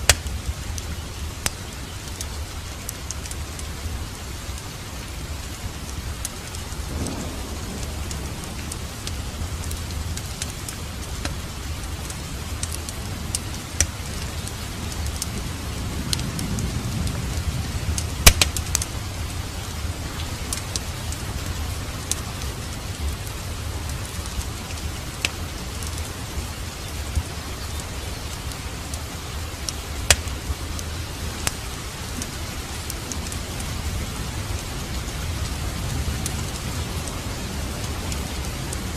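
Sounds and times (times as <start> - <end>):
steady rain: 0.0 - 38.9
wood fire crackling: 0.0 - 38.9.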